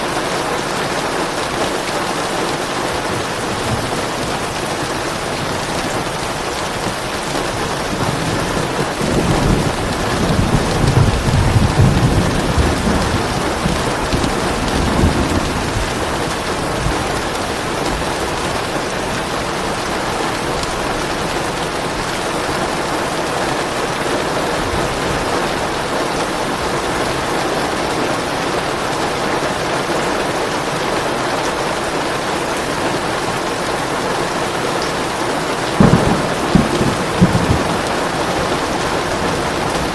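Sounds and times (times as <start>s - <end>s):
heavy rain: 0.0s - 39.9s
thunder rolling: 3.0s - 19.0s, 35.7s - 39.9s.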